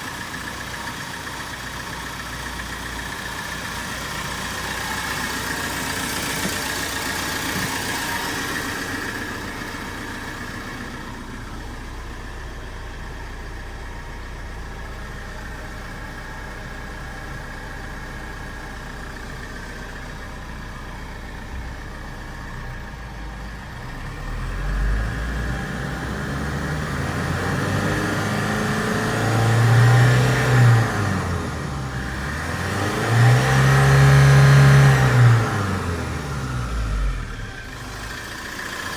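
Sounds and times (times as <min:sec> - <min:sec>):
truck engine idling: 0:00.0 - 0:38.9
truck engine revving: 0:23.8 - 0:38.9.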